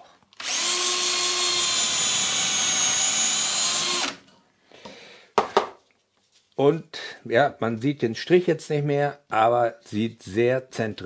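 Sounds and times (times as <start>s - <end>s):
drill motor whine: 0.4s - 4.2s.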